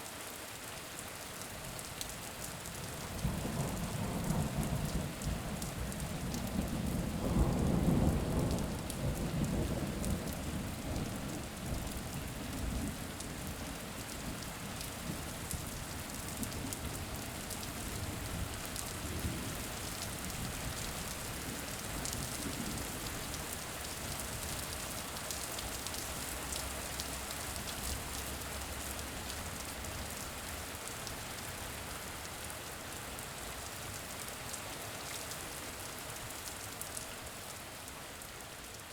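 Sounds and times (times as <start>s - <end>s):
steady rain falling: 0.0s - 38.9s
low roll of thunder: 3.2s - 13.0s.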